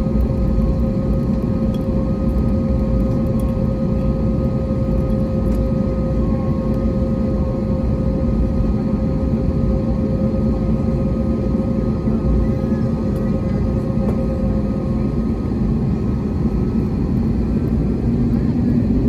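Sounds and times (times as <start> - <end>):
aircraft cabin engine rumble: 0.0 - 19.0
steady hum tone: 0.0 - 19.0.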